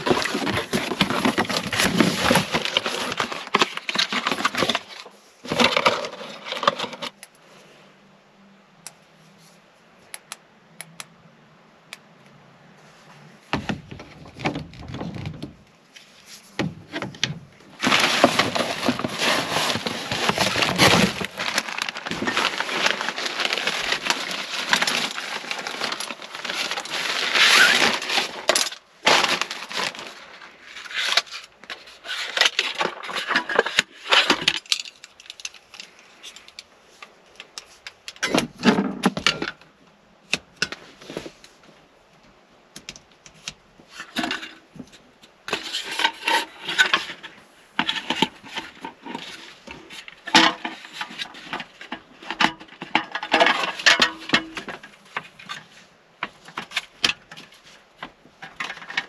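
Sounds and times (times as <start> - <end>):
rustling: 0.0 - 7.9, 12.7 - 39.6, 43.1 - 59.0
household items clinking and knocking: 16.6 - 30.1.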